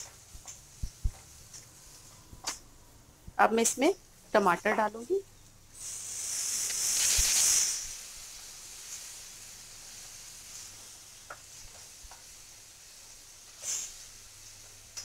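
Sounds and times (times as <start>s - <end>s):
puree sizzling in oil: 5.7s - 15.0s.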